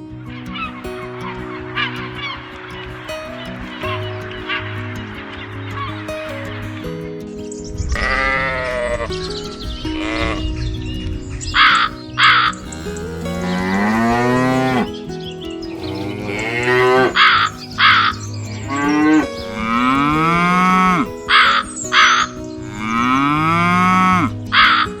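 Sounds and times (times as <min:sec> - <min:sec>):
crow cawing: 0:00.2 - 0:06.6, 0:11.6 - 0:25.0
cattle mooing: 0:11.7 - 0:14.9, 0:15.7 - 0:21.1, 0:22.6 - 0:24.3.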